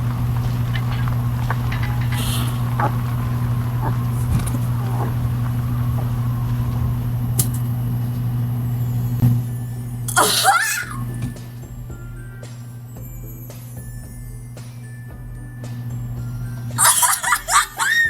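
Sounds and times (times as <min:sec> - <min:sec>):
vehicle engine drone: 0:00.0 - 0:10.2.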